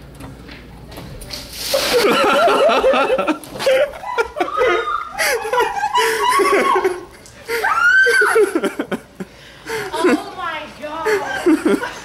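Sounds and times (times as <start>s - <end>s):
people laughing: 1.8s - 12.0s
high-pitched cry: 4.0s - 8.6s.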